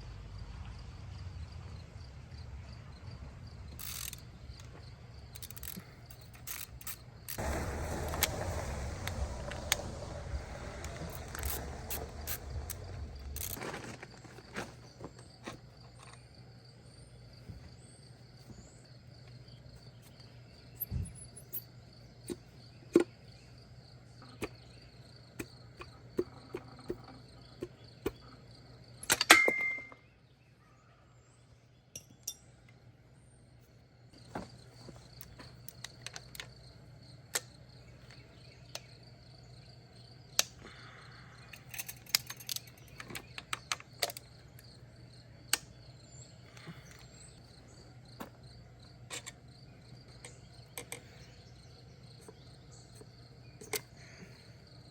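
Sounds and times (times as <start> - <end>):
metallic clicks of hand tools: 3.8 - 4.7, 5.3 - 7.1, 41.5 - 44.3, 53.6 - 53.9
low hum: 5.3 - 13.6
metal parts clattering: 5.4 - 7.0, 11.1 - 14.4, 41.5 - 44.2.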